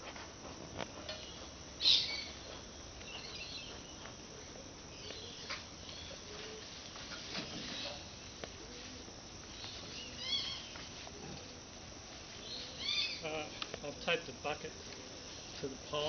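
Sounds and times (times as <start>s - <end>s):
outdoor background hiss: 0.0s - 16.0s
birds chirping: 1.2s - 6.6s, 12.4s - 14.1s.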